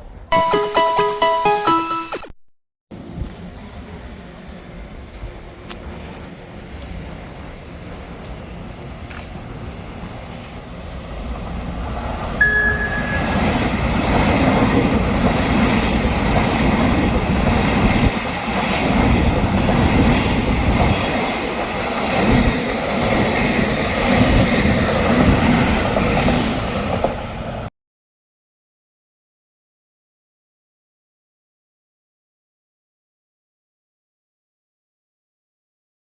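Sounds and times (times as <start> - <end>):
short high tone: 0.3 - 2.3, 12.4 - 14.0
train rumbling past: 2.9 - 27.7.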